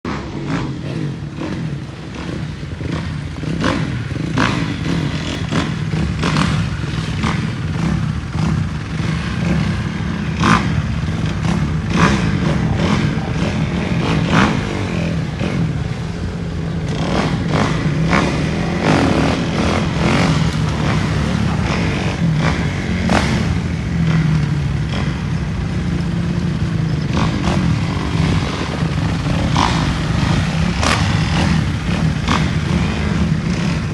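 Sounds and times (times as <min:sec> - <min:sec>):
dirt bike engine running: 0:00.1 - 0:33.9.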